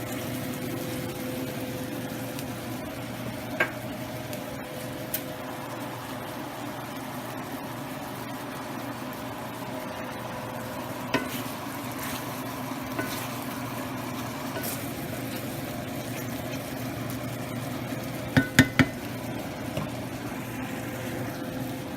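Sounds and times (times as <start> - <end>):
chicken sizzling in a frying pan: 0.0 - 21.9
kitchen fan hum: 0.0 - 21.9
metal utensil clinking on pan: 13.0 - 13.2.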